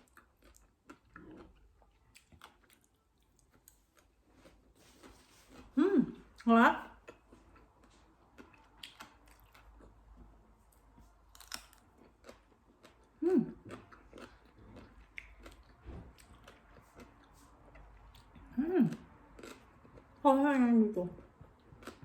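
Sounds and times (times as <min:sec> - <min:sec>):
crunching and chewing mango: 0:00.0 - 0:20.4, 0:21.0 - 0:22.0
person humming with enjoyment: 0:05.8 - 0:06.2, 0:13.2 - 0:13.6, 0:18.6 - 0:18.9.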